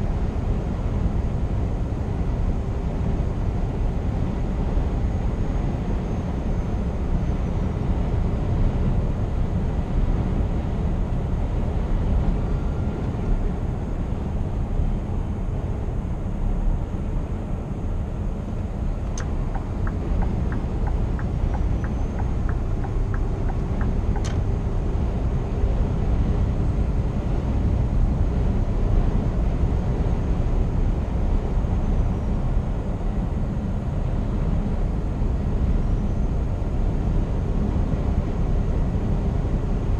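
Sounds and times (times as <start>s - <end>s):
truck engine and tyre rumble: 0.0s - 39.9s
evenly spaced ticking: 19.1s - 24.4s.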